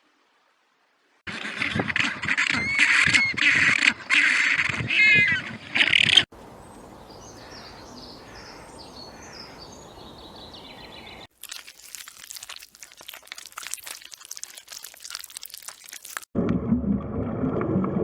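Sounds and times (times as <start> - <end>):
harsh poultry calls: 1.3 - 6.3, 7.3 - 9.8
small birds chirping: 4.9 - 11.3.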